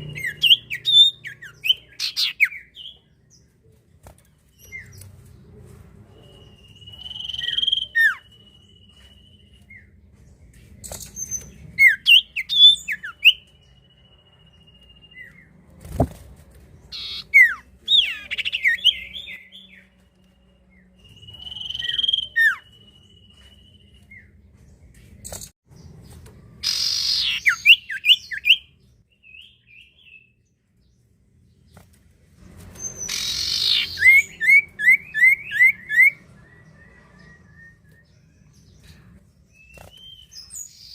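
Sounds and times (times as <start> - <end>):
harsh rasping bird calls: 0.0 - 3.0, 16.9 - 19.8, 26.6 - 28.6, 32.8 - 36.2
bird singing whistles and chirps: 0.0 - 3.1, 6.1 - 10.0, 10.7 - 15.6, 16.9 - 24.4, 26.6 - 30.4, 32.8 - 40.9.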